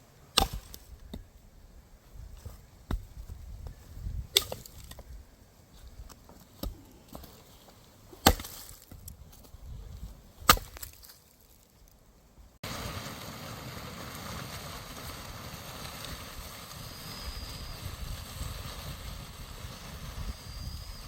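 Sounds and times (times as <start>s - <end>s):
axe chopping firewood: 0.3s - 1.3s, 4.3s - 5.0s, 6.4s - 7.4s, 8.1s - 9.5s, 10.4s - 11.2s.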